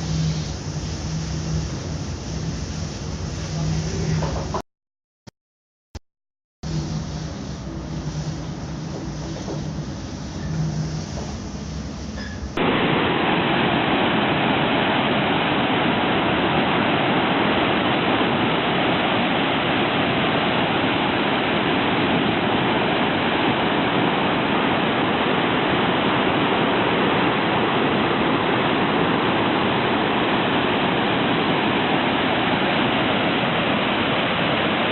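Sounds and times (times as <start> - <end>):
typhoon wind and rain roar: 12.6 - 34.9.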